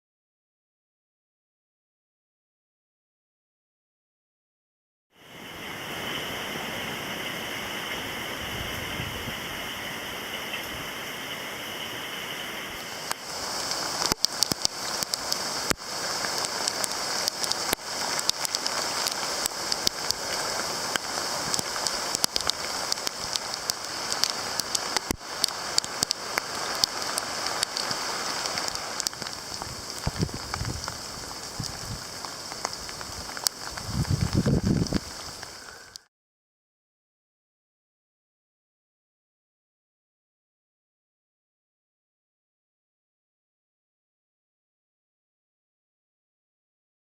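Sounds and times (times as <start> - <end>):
rain falling and dripping: 5.2 - 36.1
sharp raindrops striking close: 5.3 - 36.1.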